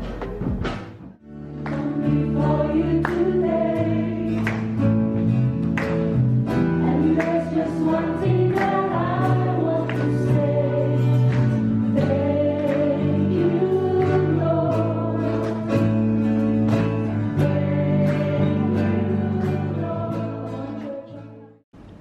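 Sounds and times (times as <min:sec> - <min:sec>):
choir singing sustained chords: 0:01.3 - 0:04.6, 0:06.7 - 0:16.2, 0:17.2 - 0:21.4.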